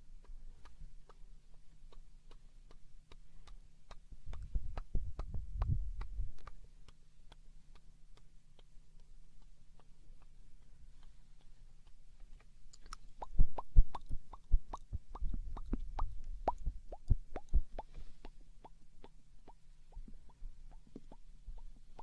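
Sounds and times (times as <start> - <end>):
tongue clicks: 0.1 - 22.0
lip pops: 11.0 - 22.0.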